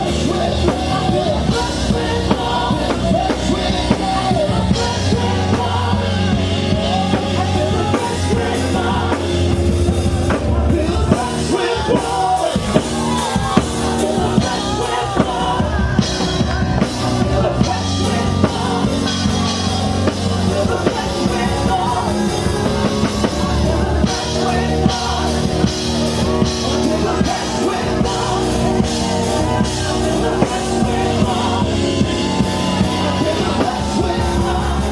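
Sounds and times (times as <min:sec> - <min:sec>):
voices singing: 0:00.0 - 0:34.9
worship band with drums: 0:00.0 - 0:34.9.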